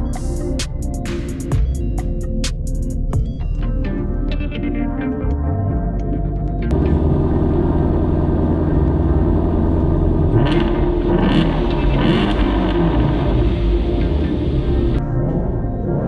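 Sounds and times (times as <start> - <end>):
car engine revving blips: 6.6 - 15.1
car engine running: 6.7 - 15.0.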